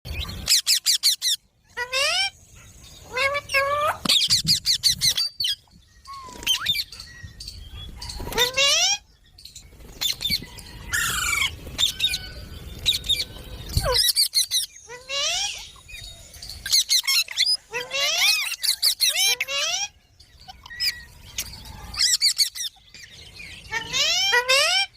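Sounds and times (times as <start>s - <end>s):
parrot harsh squawks: 0.4s - 2.4s, 23.7s - 24.9s.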